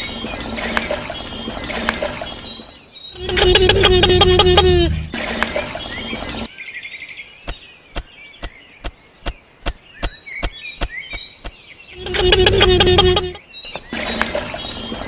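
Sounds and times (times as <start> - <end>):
faint bird chirps: 0.0 - 15.0
loud music-like tone: 3.2 - 5.3.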